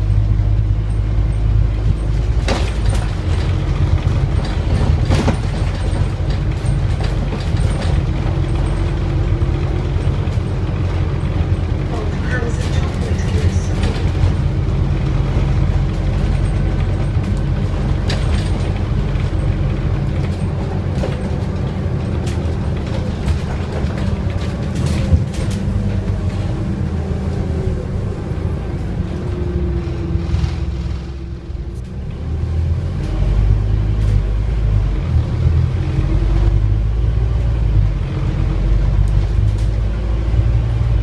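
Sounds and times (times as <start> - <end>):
bus diesel engine droning: 0.0 - 41.0
rattles and clicks: 0.8 - 26.6.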